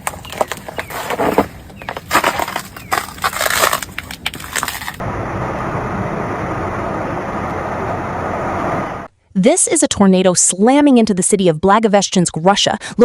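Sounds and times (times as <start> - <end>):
river ice cracking and grinding: 0.0 - 5.0
steady rushing noise: 5.0 - 9.1.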